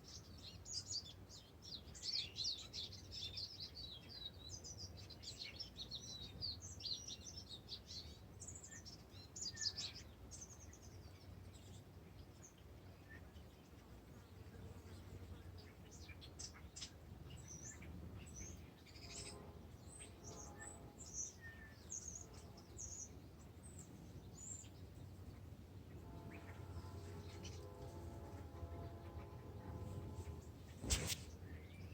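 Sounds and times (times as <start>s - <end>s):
birds chirping and trilling: 14.4s - 31.9s
steady low hum: 17.0s - 31.9s.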